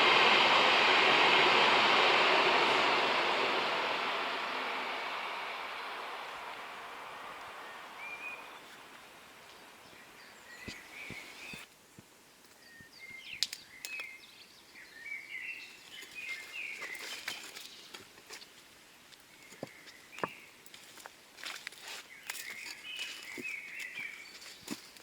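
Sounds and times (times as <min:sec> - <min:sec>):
passing train hiss: 0:00.0 - 0:11.6
small birds chirping: 0:00.0 - 0:11.7, 0:12.3 - 0:18.6, 0:19.2 - 0:20.6, 0:21.8 - 0:25.0.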